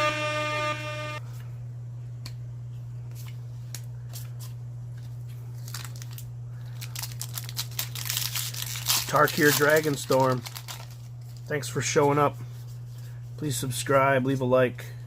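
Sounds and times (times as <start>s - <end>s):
air horn sound effect: 0.0s - 1.3s
low electrical hum: 0.0s - 15.0s
foil wrapper crinkling: 4.2s - 11.7s.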